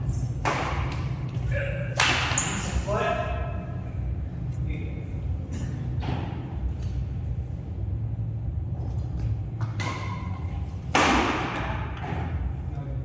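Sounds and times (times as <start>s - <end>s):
steady low hum: 0.0s - 13.0s
rackets striking shuttlecock: 9.6s - 12.3s.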